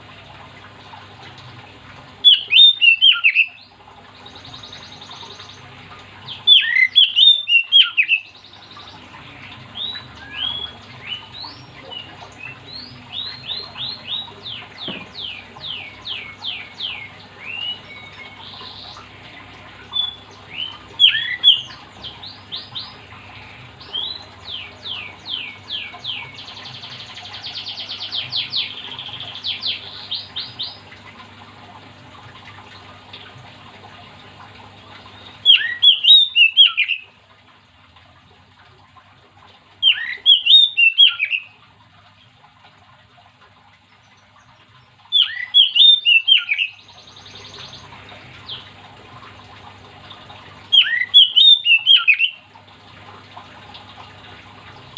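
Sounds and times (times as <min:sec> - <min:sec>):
songbird singing: 0:02.2 - 0:31.0, 0:34.8 - 0:37.1, 0:39.8 - 0:41.6, 0:43.9 - 0:48.7, 0:50.6 - 0:52.5.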